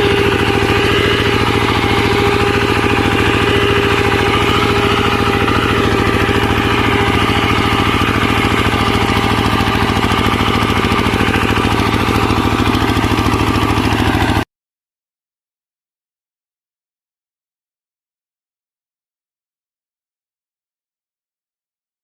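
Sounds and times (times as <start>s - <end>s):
small tractor engine running: 0.0s - 14.4s.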